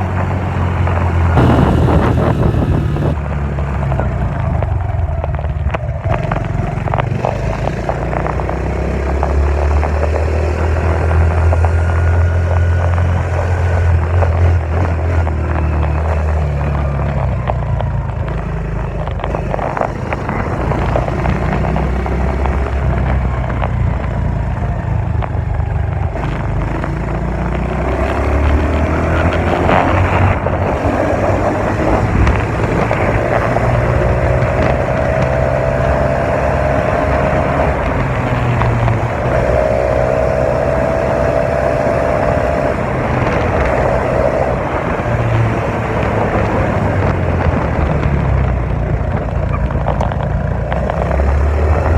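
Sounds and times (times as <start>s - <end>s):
dirt bike engine revving: 0.0s - 3.2s.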